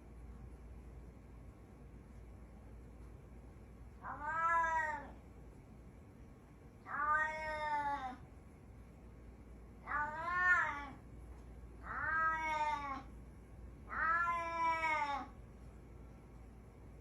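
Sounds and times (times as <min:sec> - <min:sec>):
cat yowling: 0:04.0 - 0:05.2, 0:06.9 - 0:08.2, 0:09.8 - 0:11.0, 0:11.8 - 0:13.1, 0:13.9 - 0:15.3.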